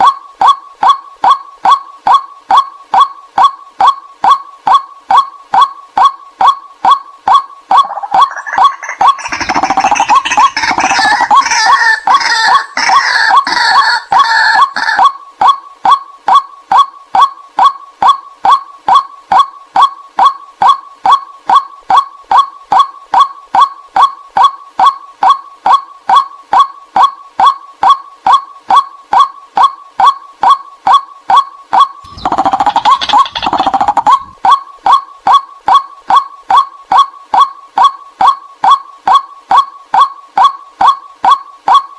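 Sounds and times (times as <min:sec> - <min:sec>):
rapid chattering bird calls: 0:06.8 - 0:15.1, 0:32.0 - 0:34.6.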